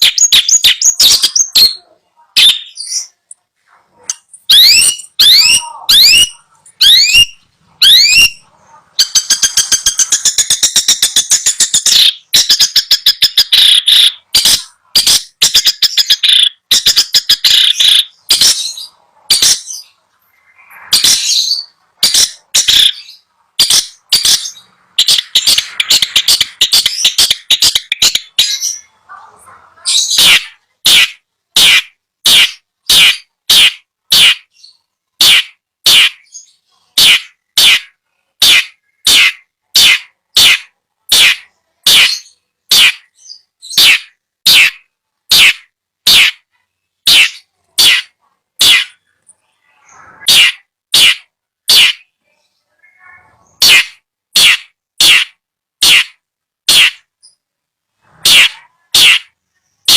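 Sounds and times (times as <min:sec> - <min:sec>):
shrike singing: 0:00.0 - 0:03.4, 0:04.0 - 0:29.0.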